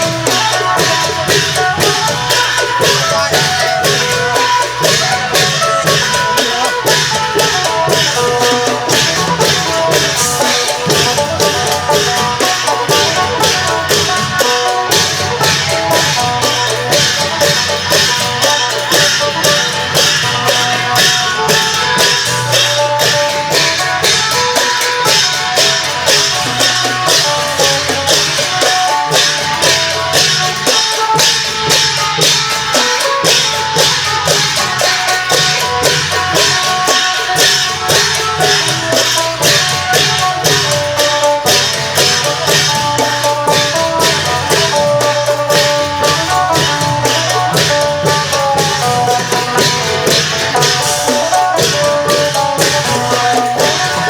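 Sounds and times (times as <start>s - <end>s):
fast percussion beat: 0.0s - 54.0s.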